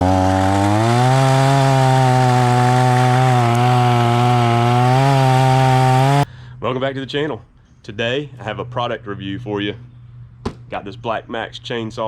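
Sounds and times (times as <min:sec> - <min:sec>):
chainsaw at high throttle: 0:00.0 - 0:06.3.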